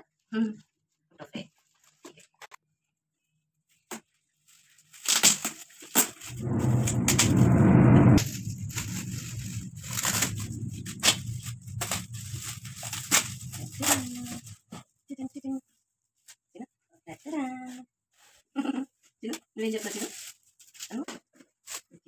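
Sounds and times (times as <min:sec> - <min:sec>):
paper rustling and crackling: 0:03.7 - 0:06.3, 0:08.2 - 0:14.8, 0:19.8 - 0:21.9
wrapping paper tearing: 0:04.5 - 0:06.3, 0:08.2 - 0:14.6, 0:19.8 - 0:20.9.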